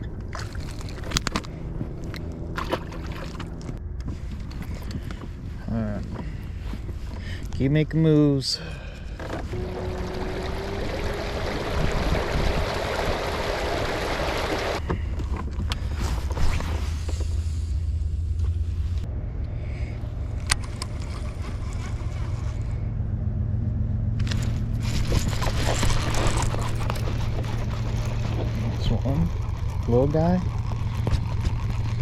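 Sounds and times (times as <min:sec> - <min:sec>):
steady low hum: 0:00.0 - 0:32.0
water rushing along hull: 0:02.0 - 0:03.8, 0:09.4 - 0:14.8, 0:24.8 - 0:32.0
wind noise: 0:08.9 - 0:17.4, 0:24.2 - 0:32.0.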